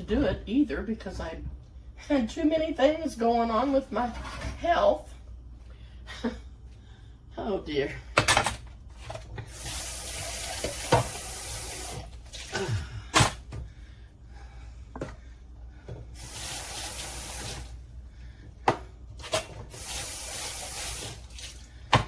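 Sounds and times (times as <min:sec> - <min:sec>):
kitchen tap running: 0:09.4 - 0:12.6, 0:16.0 - 0:17.8, 0:18.7 - 0:22.0.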